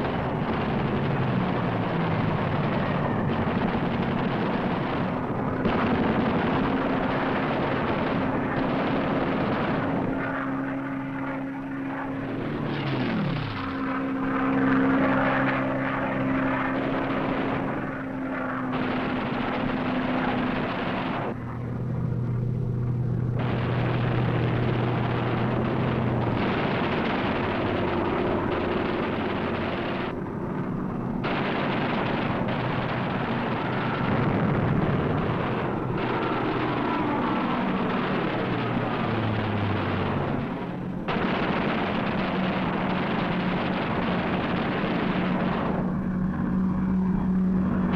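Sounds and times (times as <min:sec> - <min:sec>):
propeller aircraft engine drone: 0:00.0 - 0:47.9
rushing noise: 0:23.2 - 0:47.9.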